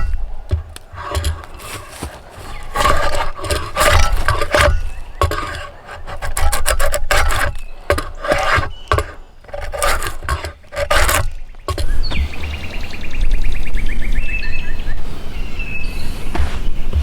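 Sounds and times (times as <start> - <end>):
hand tool rasping wood: 0.0 - 12.4.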